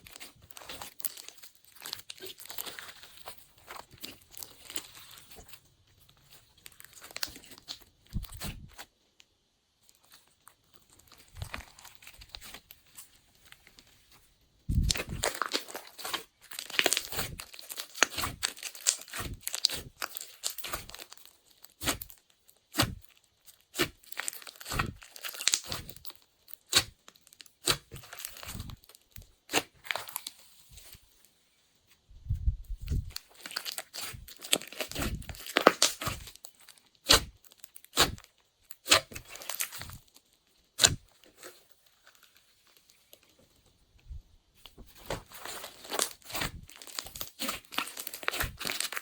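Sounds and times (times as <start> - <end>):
slime squeezed by hand: 32.3 - 36.3.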